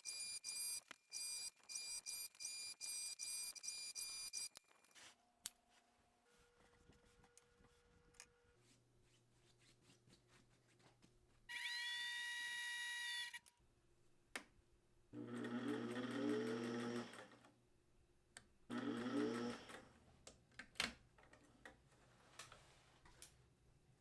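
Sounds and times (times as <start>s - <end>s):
sewing machine whirring: 0.0s - 5.0s, 15.2s - 17.5s, 18.7s - 20.0s.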